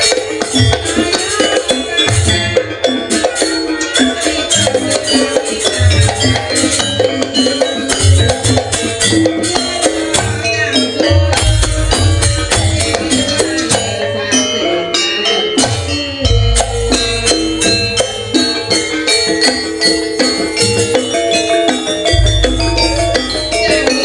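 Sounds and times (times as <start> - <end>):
fast dense percussion: 0.0 - 24.0
pitched melodic notes: 0.0 - 24.0
deep booming low notes: 22.2 - 23.6.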